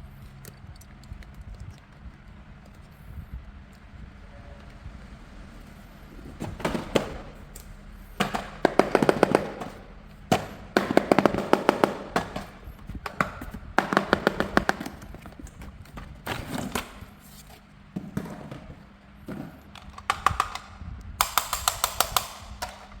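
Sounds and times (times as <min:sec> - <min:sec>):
rapid clicking and rattling: 0:06.2 - 0:17.2, 0:19.7 - 0:23.0.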